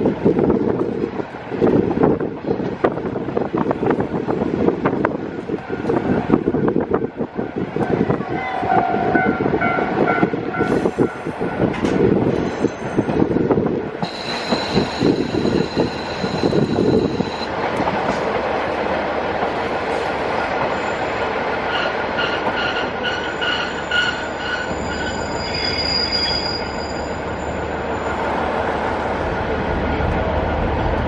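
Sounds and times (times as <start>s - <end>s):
diesel railcar engine: 0.0s - 31.0s
high wheel squeal: 12.3s - 13.4s, 14.0s - 17.5s, 20.7s - 29.3s.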